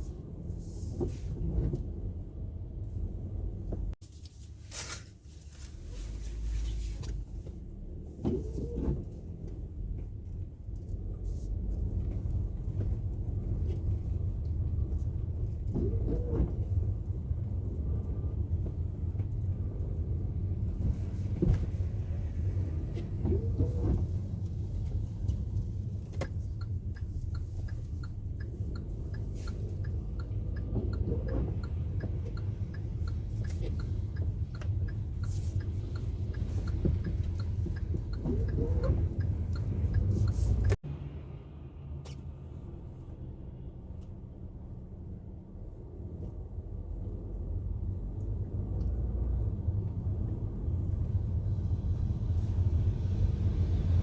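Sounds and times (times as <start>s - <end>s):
road and engine rumble in car: 0.0s - 54.0s
regular ticking: 25.2s - 40.8s.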